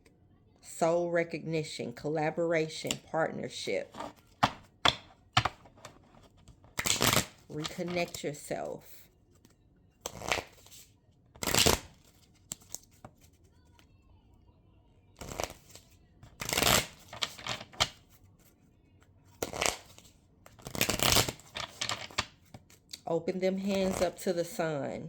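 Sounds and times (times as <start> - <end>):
deck of cards shuffling: 3.9 - 13.9, 15.2 - 18.6, 19.4 - 23.0, 23.6 - 24.3.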